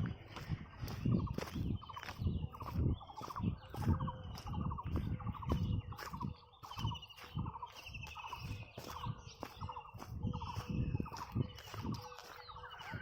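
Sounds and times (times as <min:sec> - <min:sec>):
birds calling in trills: 0:00.0 - 0:13.0
footsteps walking: 0:00.0 - 0:13.0.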